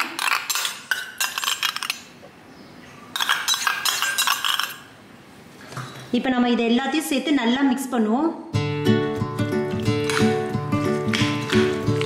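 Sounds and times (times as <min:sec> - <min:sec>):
metal spoon scraping a bowl: 0:03.2 - 0:04.9.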